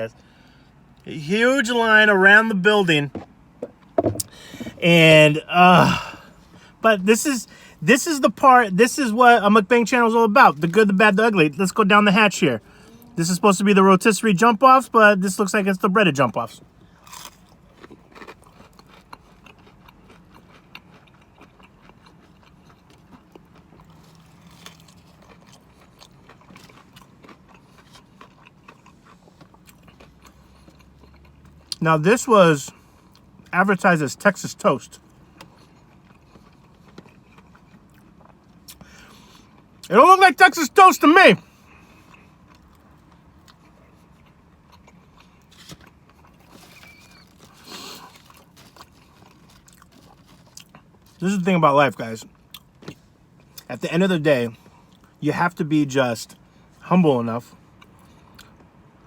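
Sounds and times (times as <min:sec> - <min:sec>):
chewing crunchy food: 0:16.8 - 0:31.8, 0:34.9 - 0:39.9, 0:41.6 - 0:51.2, 0:57.7 - 0:58.8.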